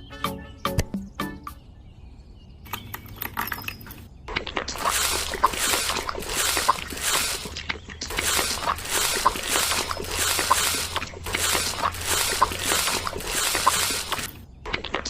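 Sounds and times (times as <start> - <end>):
rhythmic scraping strokes: 4.7 - 14.4.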